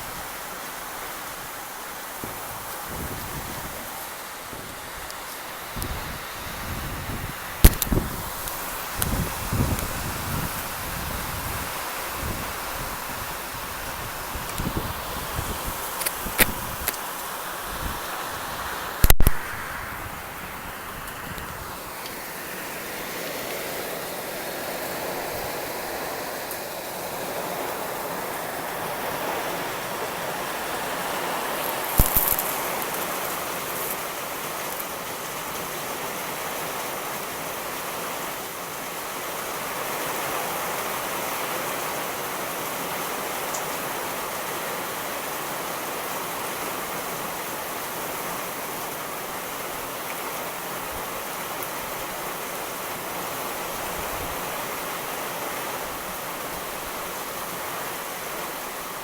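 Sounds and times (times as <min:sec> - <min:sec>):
heavy rain hissing: 0:00.0 - 0:59.0
sharp crack: 0:07.6 - 0:08.0, 0:19.0 - 0:19.8, 0:31.7 - 0:33.0.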